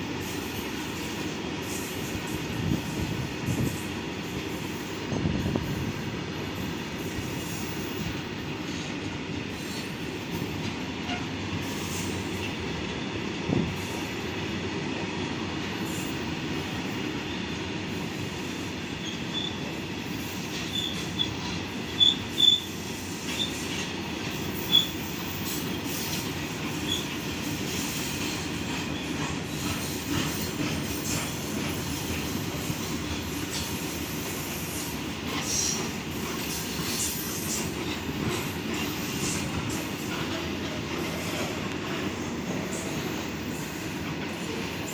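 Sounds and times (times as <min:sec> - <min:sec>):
train wagons rumbling on track: 0:00.0 - 0:44.9
high wheel squeals: 0:18.9 - 0:23.8, 0:24.4 - 0:26.2, 0:26.8 - 0:28.2.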